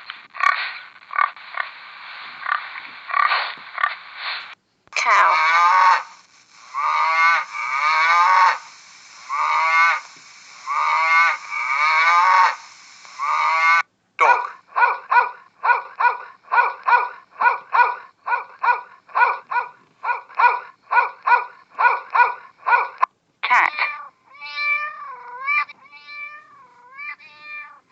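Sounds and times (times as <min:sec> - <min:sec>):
long drawn-out animal calls: 0:05.0 - 0:23.0.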